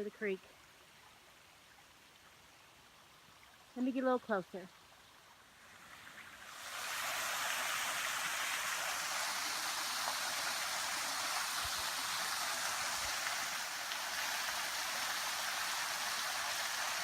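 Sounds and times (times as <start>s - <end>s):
waterfall rushing: 6.1s - 17.0s.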